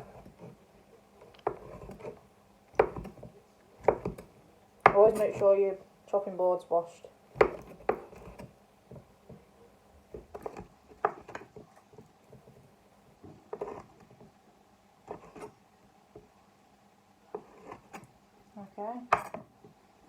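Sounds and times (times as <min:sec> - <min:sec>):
knife scraping: 0:01.4 - 0:02.2, 0:04.9 - 0:05.5, 0:07.4 - 0:08.5, 0:10.2 - 0:11.9, 0:13.5 - 0:14.2, 0:15.1 - 0:15.6, 0:17.3 - 0:18.1.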